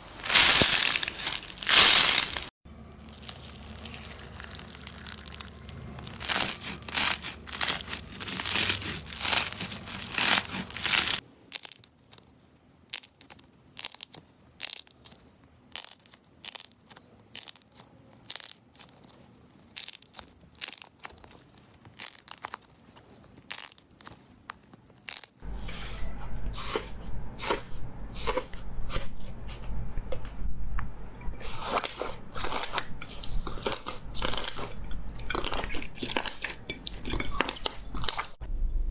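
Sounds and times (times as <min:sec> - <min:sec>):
slime crackling and popping: 0:00.0 - 0:25.4
low hum: 0:25.4 - 0:31.5, 0:38.4 - 0:38.9.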